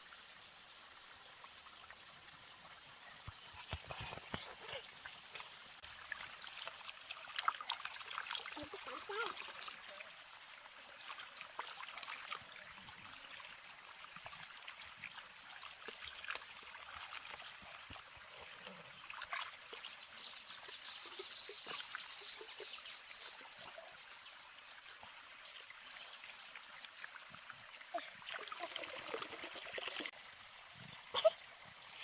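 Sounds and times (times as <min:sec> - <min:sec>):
water trickling: 0:00.0 - 0:32.0
small clicks and splashes: 0:03.2 - 0:10.1, 0:10.9 - 0:23.8.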